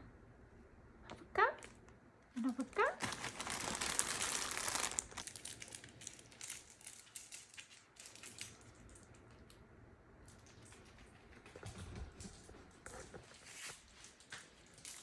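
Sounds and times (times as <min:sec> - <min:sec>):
soft crinkling and rustling: 0:01.6 - 0:09.6, 0:11.6 - 0:15.0.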